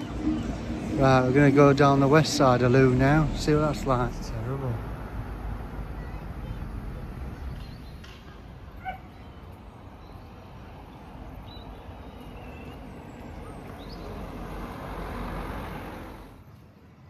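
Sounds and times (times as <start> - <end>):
vehicle passing: 0.0 - 7.9, 14.0 - 16.4.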